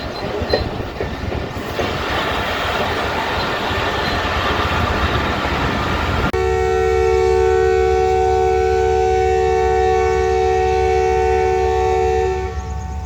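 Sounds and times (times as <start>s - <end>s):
locomotive air horn chord: 6.4s - 13.0s.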